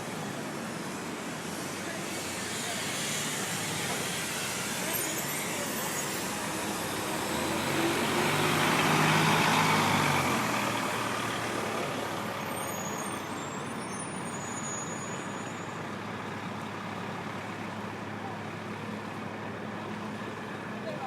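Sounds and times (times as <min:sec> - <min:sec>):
traffic noise: 0:00.0 - 0:21.0
heavy vehicle engine passing: 0:00.2 - 0:13.6.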